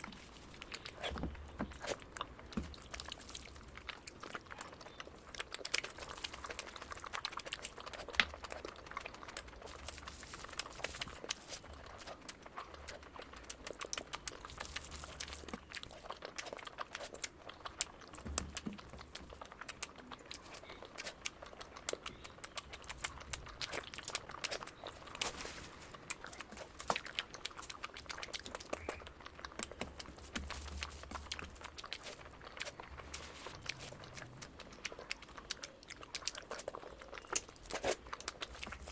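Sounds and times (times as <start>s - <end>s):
person chewing food: 0.0s - 38.9s
wet mouth clicks and smacks: 10.6s - 25.4s, 26.0s - 38.9s.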